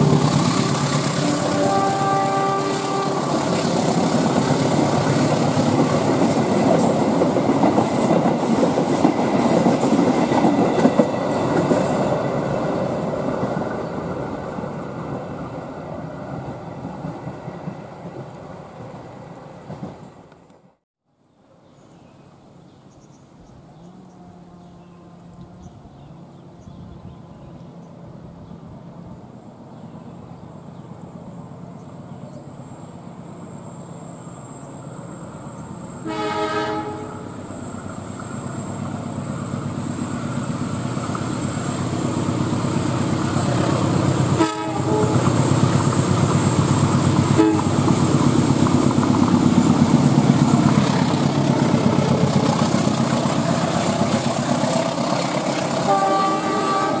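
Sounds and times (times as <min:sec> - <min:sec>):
train horn blast: 0:00.0 - 0:03.6, 0:36.0 - 0:37.4, 0:44.3 - 0:45.4, 0:47.3 - 0:47.8, 0:55.8 - 0:57.0
locomotive engine and wheels: 0:00.0 - 0:20.8, 0:23.3 - 0:57.0.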